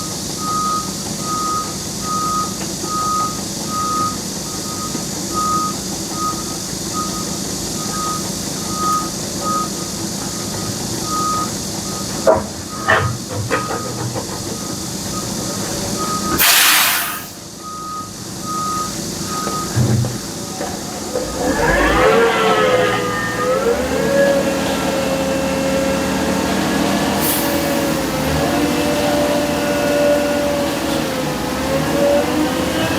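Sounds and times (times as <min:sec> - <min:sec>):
reversing alarm beeping: 0:00.0 - 0:26.1
heavy work vehicle running: 0:00.0 - 0:32.9
heavy machinery engine revving: 0:04.6 - 0:32.9
short harsh machine sounds: 0:16.4 - 0:17.4
engine whine: 0:17.2 - 0:32.9.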